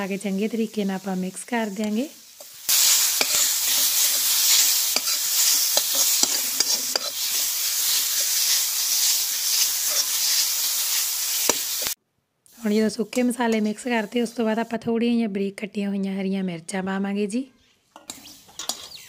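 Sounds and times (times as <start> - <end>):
vegetables sizzling in a pan: 0.0 - 12.0, 12.6 - 14.8
metal spatula scraping pan: 2.4 - 10.4, 18.0 - 19.0.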